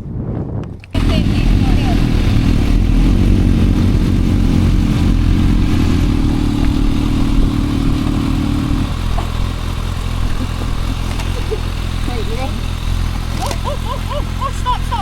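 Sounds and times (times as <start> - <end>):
motorcycle engine running: 0.9 - 15.0.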